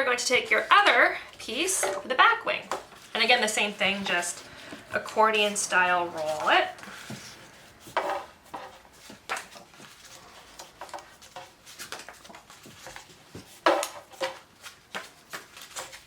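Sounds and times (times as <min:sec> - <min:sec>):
card stock crinkling and creasing: 0:08.9 - 0:13.6, 0:14.2 - 0:16.0.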